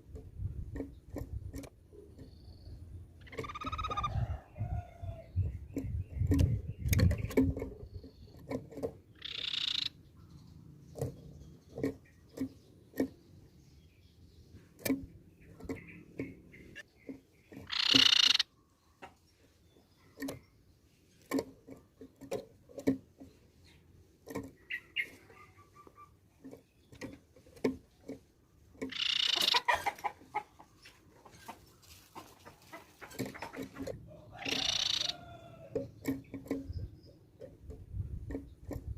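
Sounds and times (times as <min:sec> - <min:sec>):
bird ringing calls: 0:02.0 - 0:04.2, 0:09.1 - 0:13.4, 0:15.4 - 0:19.0, 0:24.6 - 0:27.1, 0:28.8 - 0:29.9, 0:33.3 - 0:37.3.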